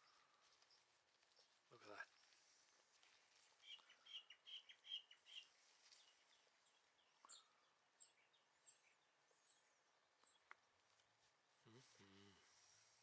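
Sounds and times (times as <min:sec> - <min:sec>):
birds chirping: 0:00.0 - 0:02.9, 0:03.6 - 0:10.8.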